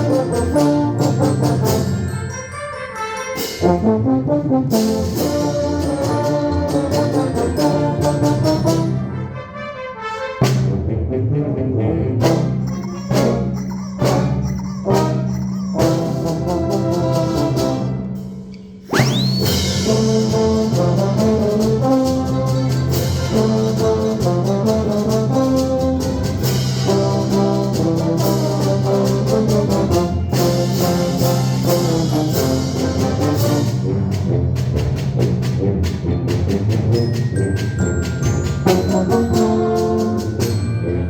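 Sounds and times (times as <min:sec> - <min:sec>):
brass band playing lively music: 0:00.0 - 0:18.2, 0:18.9 - 0:41.0
short high squeal: 0:18.8 - 0:19.8.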